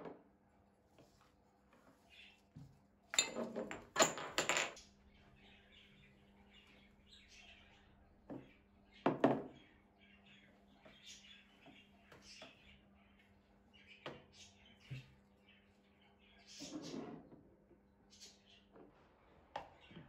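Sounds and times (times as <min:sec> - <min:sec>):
hard objects clattering: 0:03.2 - 0:04.8.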